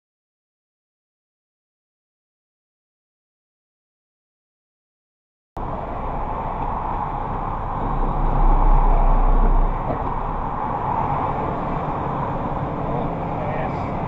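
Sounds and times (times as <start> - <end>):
vehicle road and engine noise: 5.6 - 14.0.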